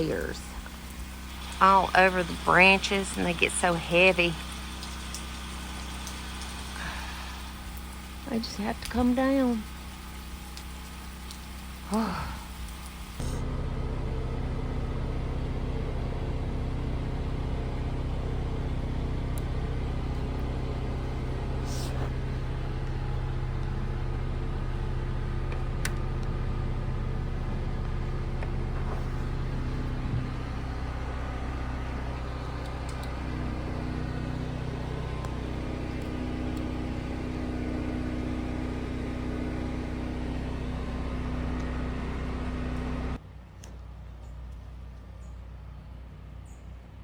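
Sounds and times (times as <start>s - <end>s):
engine idling: 0.0s - 47.0s.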